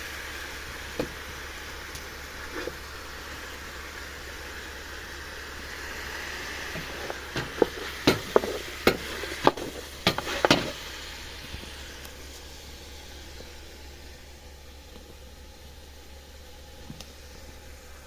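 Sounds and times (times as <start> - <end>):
food sizzling: 0.0 - 14.1.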